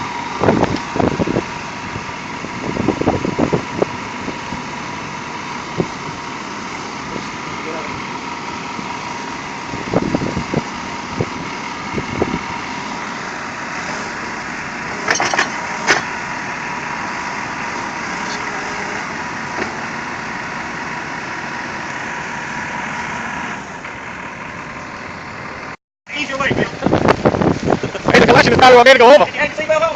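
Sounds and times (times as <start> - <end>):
heavy vehicle engine running: 0.0 - 29.9
sharp metal clanks: 15.0 - 16.1.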